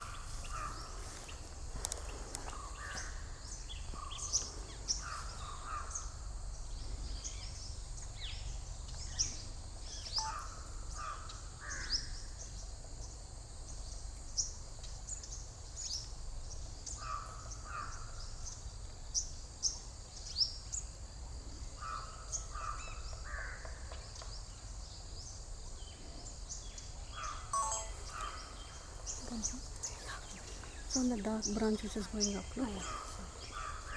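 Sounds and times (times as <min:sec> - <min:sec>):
birds chirping: 0:00.0 - 0:12.0, 0:24.2 - 0:33.9
lower bird calls: 0:09.0 - 0:12.3, 0:26.2 - 0:33.9.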